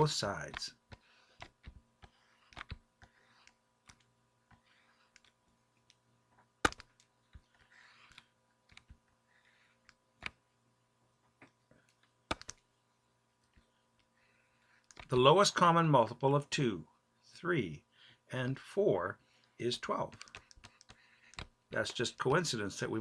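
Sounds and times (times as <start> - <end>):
faint steady hum: 0.0 - 23.0
sharp clicks and taps: 0.4 - 9.0, 11.4 - 12.6, 14.8 - 15.2, 20.1 - 22.0.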